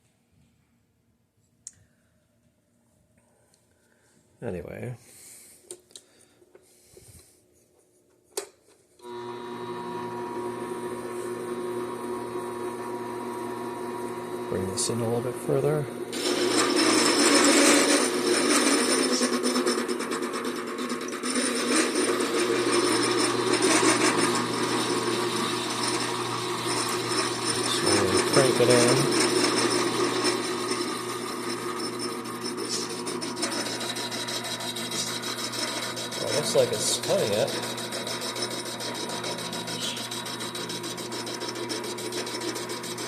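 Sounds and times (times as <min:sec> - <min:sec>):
lathe motor humming with whine: 0:09.0 - 0:43.0
cutting tool facing aluminum: 0:15.1 - 0:43.0.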